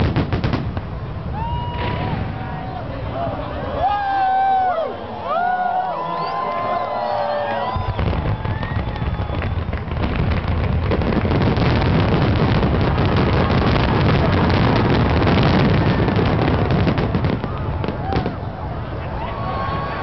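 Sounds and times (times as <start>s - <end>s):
fireworks bursting and crackling: 0.0s - 3.0s, 7.6s - 20.0s.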